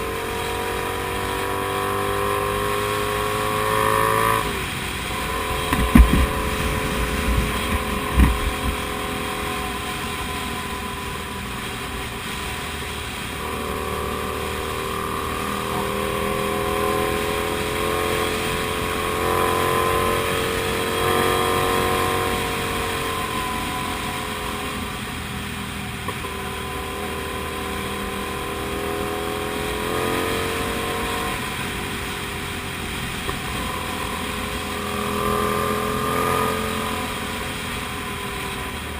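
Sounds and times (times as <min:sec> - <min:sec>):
motorcycle engine running: 0:00.0 - 0:38.9
short thumps: 0:05.6 - 0:08.9.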